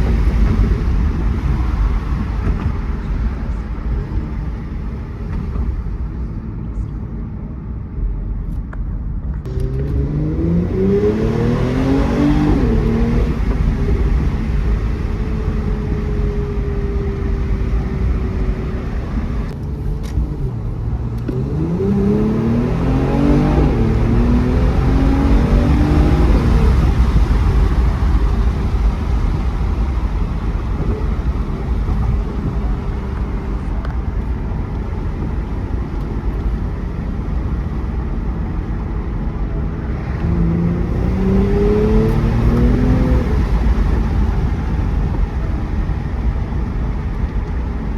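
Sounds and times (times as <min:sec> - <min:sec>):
low road rumble: 0:00.0 - 0:47.9
car engine accelerating: 0:09.2 - 0:47.9.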